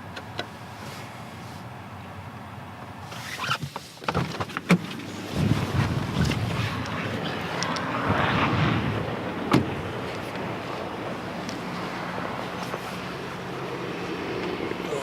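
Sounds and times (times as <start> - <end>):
wind rumble on microphone: 5.2 - 12.5
car door clicks and knock: 9.5 - 9.7.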